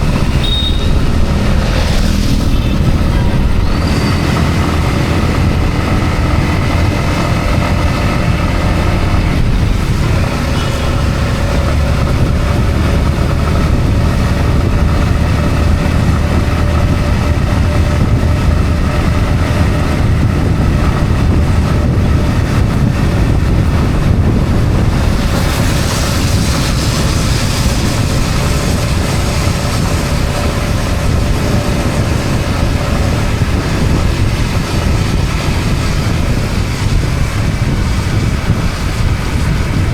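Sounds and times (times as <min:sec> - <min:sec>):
motorcycle engine running: 0:00.0 - 0:39.9
tyre hiss on wet road: 0:24.9 - 0:32.1.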